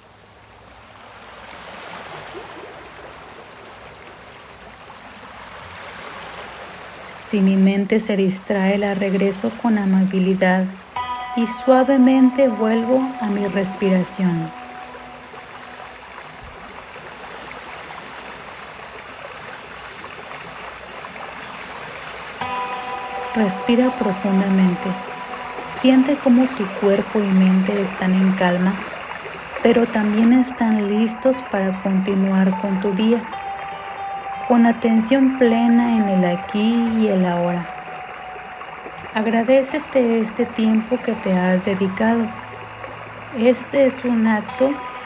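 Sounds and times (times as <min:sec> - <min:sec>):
sea waves surf rushing: 0:08.5 - 0:19.5, 0:20.2 - 0:45.0.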